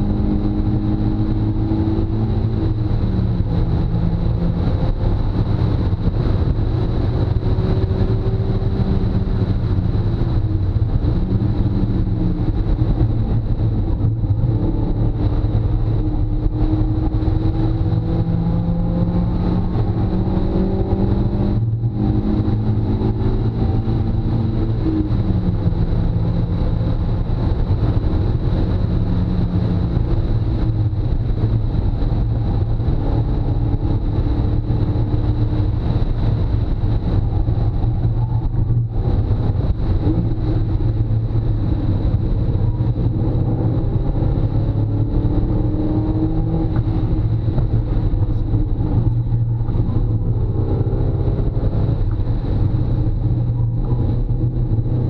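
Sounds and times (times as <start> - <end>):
car engine accelerating: 0.0 - 55.0
road and wind noise: 0.0 - 55.0.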